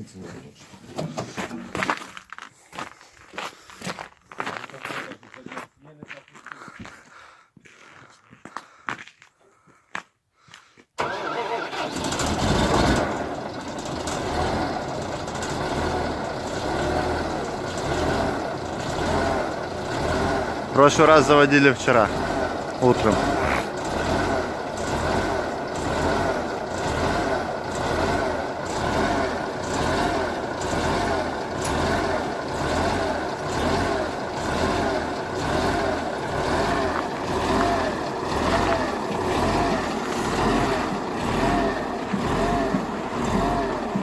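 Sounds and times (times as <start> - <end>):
tractor diesel engine running: 11.0 - 44.0.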